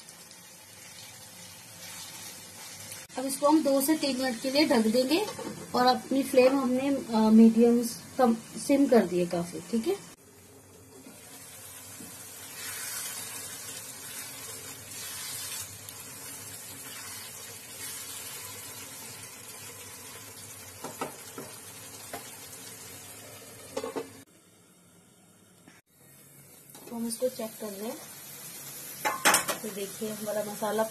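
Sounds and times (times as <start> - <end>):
masala sizzling in a pan: 0.0 - 30.9.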